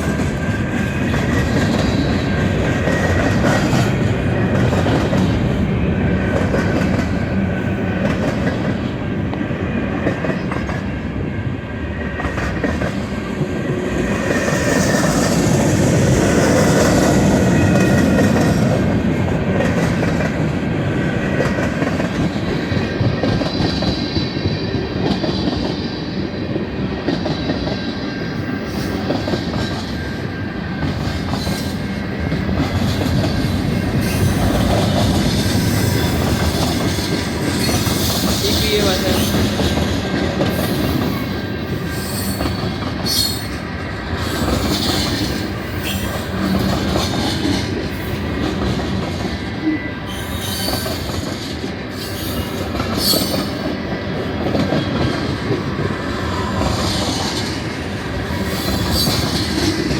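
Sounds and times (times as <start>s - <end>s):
train wheels clickety-clack: 0.0s - 59.9s
metallic wheel squeal: 41.8s - 43.6s, 49.7s - 51.1s, 52.0s - 53.6s.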